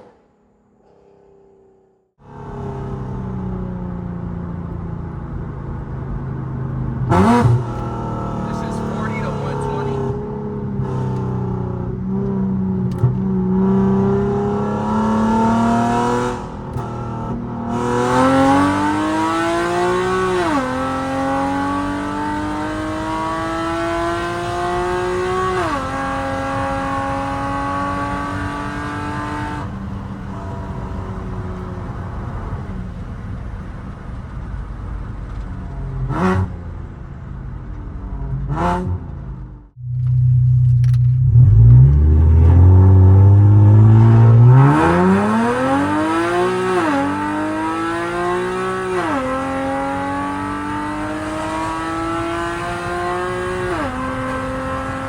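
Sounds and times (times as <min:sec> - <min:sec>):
exhaust cracks: 0:07.0 - 0:10.1
car engine revving through gears: 0:07.0 - 0:32.7, 0:35.4 - 0:36.8, 0:38.2 - 0:55.0.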